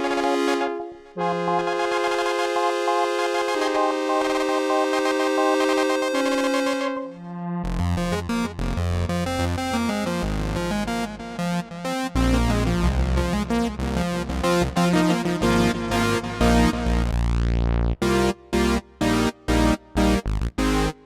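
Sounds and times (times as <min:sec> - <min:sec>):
synth bass line: 0:01.2 - 0:21.0
synthesizer sequenced pattern: 0:08.0 - 0:17.2, 0:18.0 - 0:21.0.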